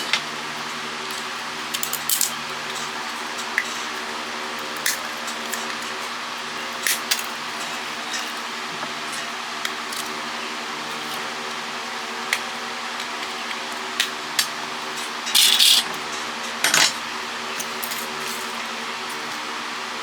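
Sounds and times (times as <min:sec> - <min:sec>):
parts rattling: 0:15.3 - 0:15.9.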